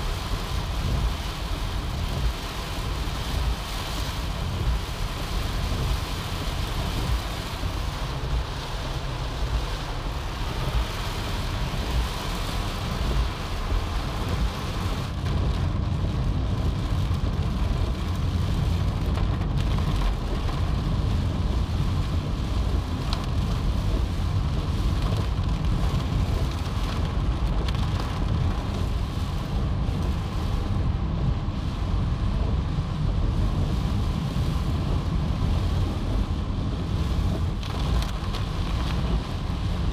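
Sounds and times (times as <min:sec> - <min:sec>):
heavy rain: 0:00.0 - 0:39.9
strong wind: 0:00.0 - 0:39.9.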